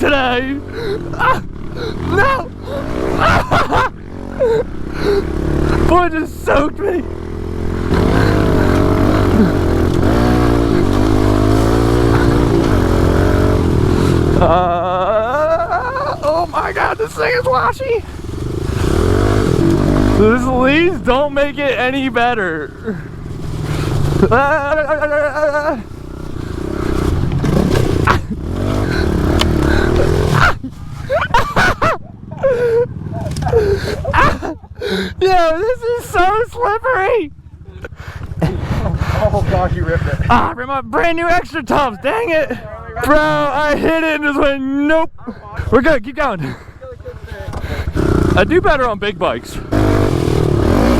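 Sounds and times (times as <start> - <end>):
small motorbike engine revving: 0.6 - 31.7, 47.2 - 48.6, 49.6 - 50.9.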